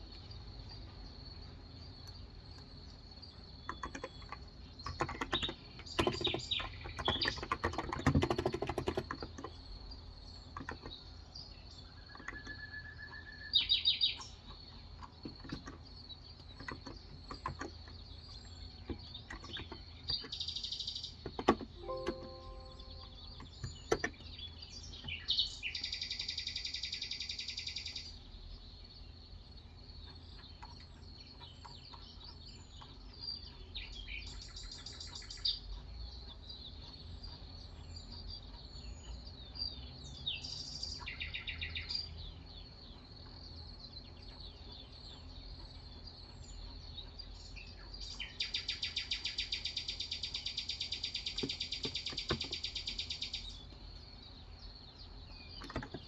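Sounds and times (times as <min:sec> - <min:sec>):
bird chirps: 0:00.1 - 0:28.4, 0:40.1 - 0:56.0.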